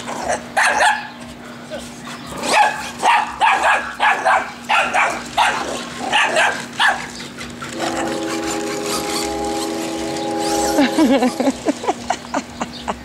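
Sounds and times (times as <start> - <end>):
dog barking: 0.6 - 1.1, 2.4 - 7.1
steady multi-tone whine: 7.4 - 12.6.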